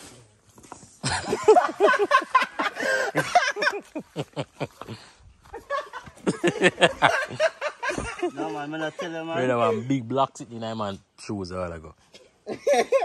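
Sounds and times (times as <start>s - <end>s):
man laughing: 1.0s - 9.8s, 12.5s - 13.0s.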